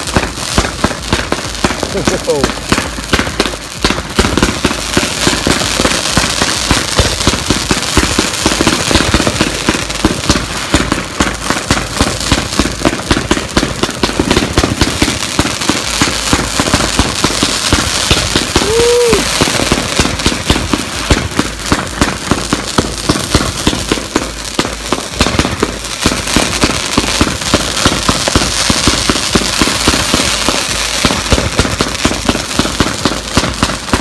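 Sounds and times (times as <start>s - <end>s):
firework barrage: 0.0s - 34.0s.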